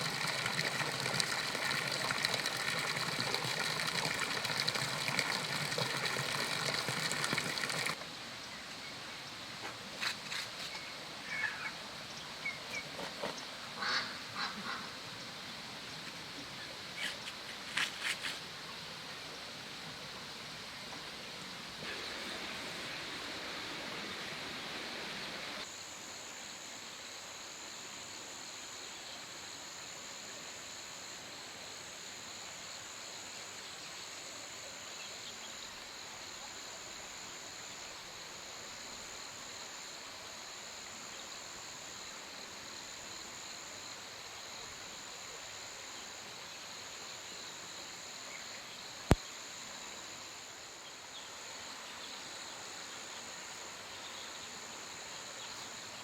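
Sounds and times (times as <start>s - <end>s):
steady hiss: 0.0s - 12.8s, 13.4s - 56.0s
insects trilling: 21.7s - 56.0s.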